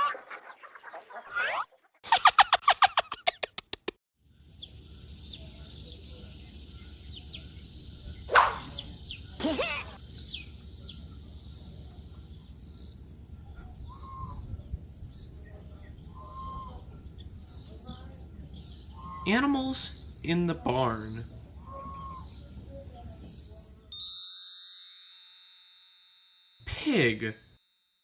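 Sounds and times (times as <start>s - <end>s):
small birds chirping: 4.2s - 23.9s
wavering pitched call: 13.7s - 14.6s, 16.0s - 16.9s, 18.9s - 19.5s, 21.6s - 22.5s.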